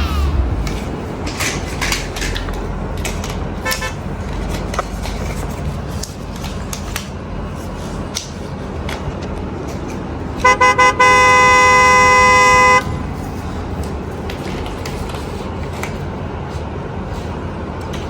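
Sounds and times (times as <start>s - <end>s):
horn toots and blast: 10.4s - 13.1s.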